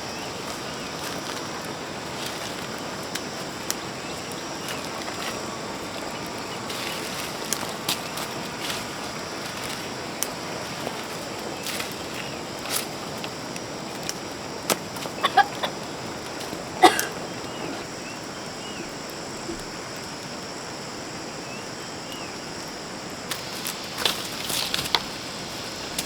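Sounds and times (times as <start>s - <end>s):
steady background hiss: 0.0s - 26.0s
chicken squawks: 15.2s - 15.7s
chickens clucking: 15.2s - 15.9s.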